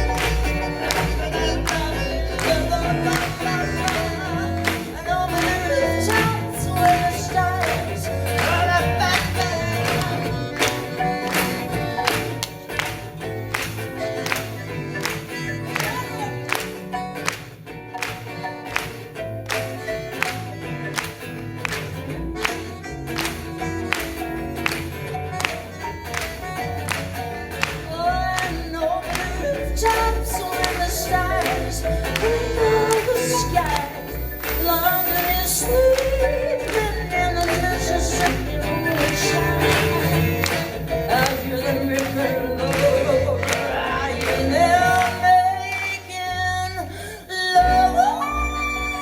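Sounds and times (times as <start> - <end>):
folk-pop band playing: 0.0 - 49.0
woman singing wordless melody: 27.9 - 49.0.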